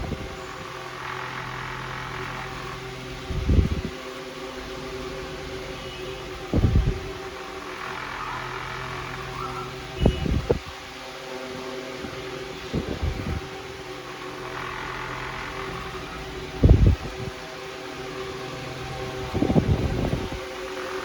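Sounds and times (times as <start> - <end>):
air buffeting microphone thumps: 6.5 - 7.1.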